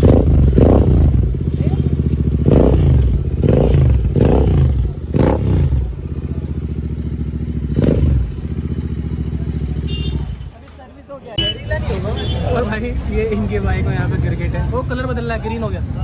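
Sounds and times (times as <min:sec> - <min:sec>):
motorcycle engine revving and idling: 0:00.0 - 0:10.7.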